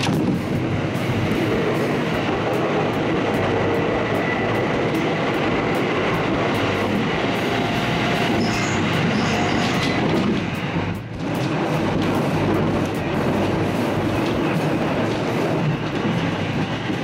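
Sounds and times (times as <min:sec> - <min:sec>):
rumble of wheels on rail: 0:00.0 - 0:17.0.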